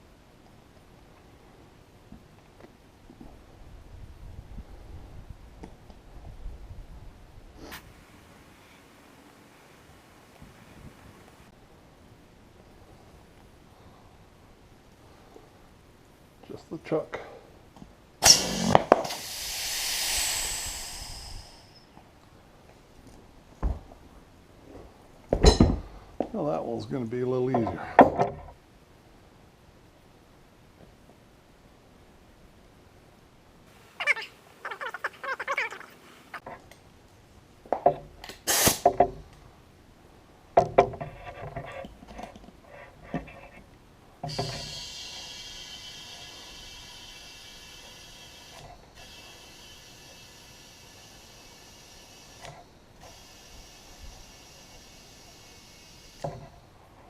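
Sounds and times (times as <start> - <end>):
compressed air hissing into tire: 18.2 - 22.0, 38.2 - 39.0, 44.2 - 56.7.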